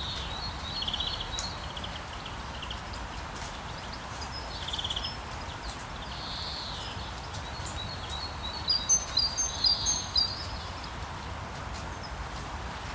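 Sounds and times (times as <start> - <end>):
birds chirping: 3.7 - 10.9.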